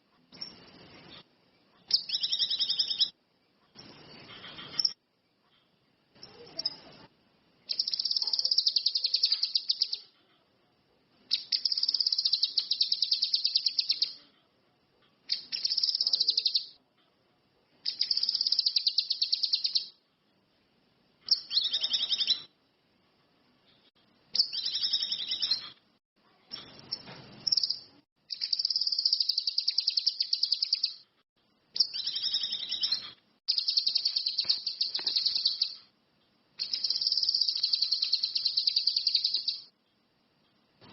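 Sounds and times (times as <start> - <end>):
bird chattering trill: 1.9 - 3.1, 7.7 - 10.1, 11.3 - 14.2, 17.9 - 19.9, 26.8 - 31.0, 31.8 - 35.8, 36.6 - 39.7.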